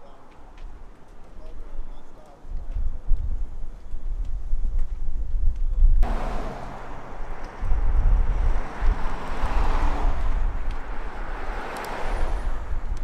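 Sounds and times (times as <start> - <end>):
wind buffeting microphone: 0.4 - 13.0
rushing noise: 6.0 - 12.6.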